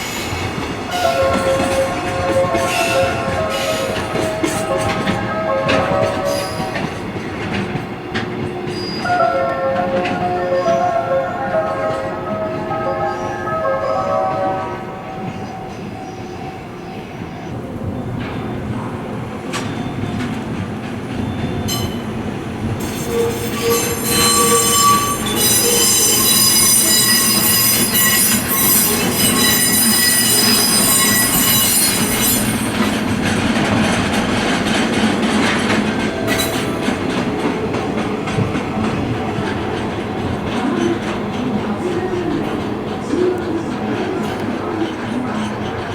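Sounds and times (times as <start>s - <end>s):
freight train rumbling: 0.0s - 45.9s
train wheels squealing: 5.9s - 9.2s, 19.5s - 22.2s, 22.8s - 37.2s.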